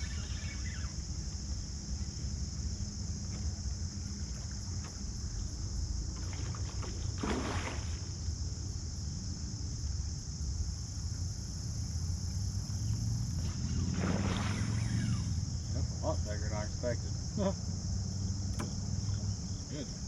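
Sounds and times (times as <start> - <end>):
water rumbling around kayak: 0.0 - 20.0
water splashing swish: 6.2 - 8.3, 13.4 - 15.4.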